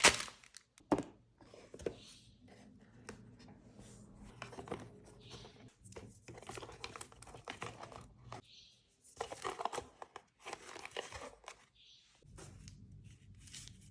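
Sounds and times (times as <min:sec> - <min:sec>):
plastic and paper rustling: 0:00.0 - 0:00.9, 0:04.3 - 0:08.4, 0:09.0 - 0:13.9.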